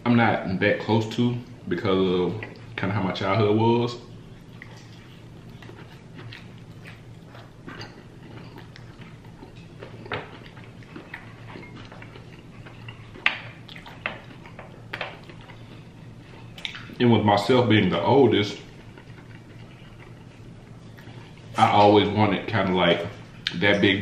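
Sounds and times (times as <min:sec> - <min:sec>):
faint steady hum: 0:00.0 - 0:24.0
chewing and mouth smacks: 0:02.3 - 0:02.8, 0:04.0 - 0:17.0, 0:18.5 - 0:21.9.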